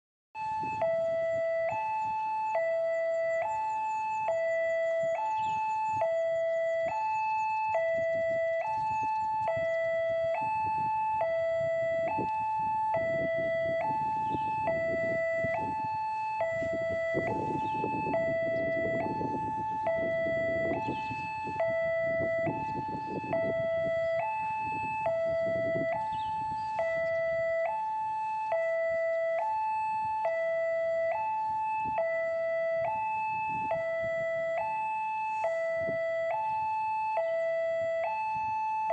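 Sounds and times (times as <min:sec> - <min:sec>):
level crossing two-tone alarm: 0:00.4 - 0:38.9.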